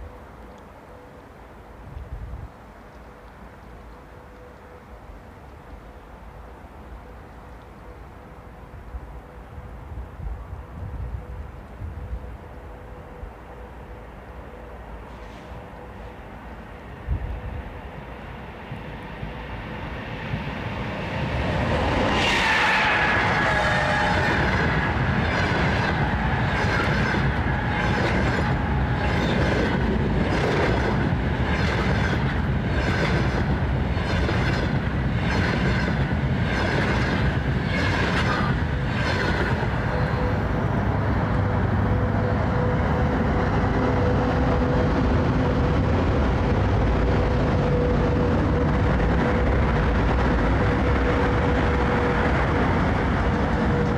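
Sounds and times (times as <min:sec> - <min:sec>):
electric locomotive whine: 0:00.0 - 0:53.9
freight train rumbling past: 0:03.1 - 0:53.9
train wheels over rail joints: 0:18.5 - 0:53.9.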